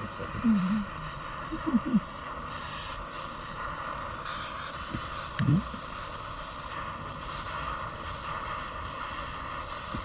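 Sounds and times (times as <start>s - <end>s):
gas torch hissing: 0.0s - 10.0s.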